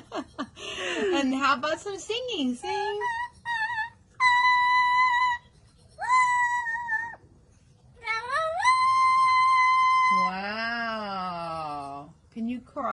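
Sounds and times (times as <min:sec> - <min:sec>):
parrot singing: 0:02.7 - 0:07.2, 0:08.0 - 0:10.6.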